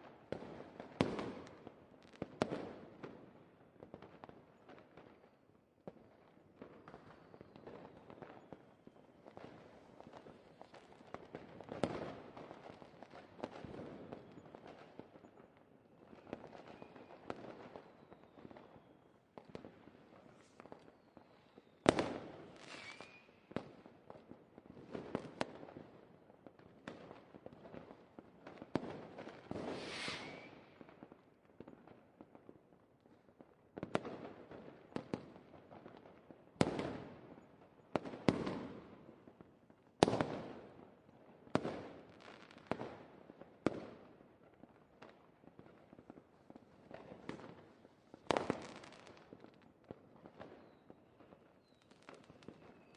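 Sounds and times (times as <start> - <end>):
fireworks bursting and crackling: 19.4 - 25.8, 28.4 - 31.3, 45.6 - 52.9
fireworks whoosh: 29.5 - 30.8.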